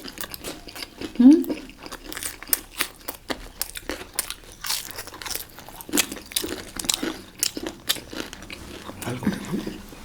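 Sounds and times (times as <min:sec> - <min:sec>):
crunchy chewing: 0:00.0 - 0:10.0.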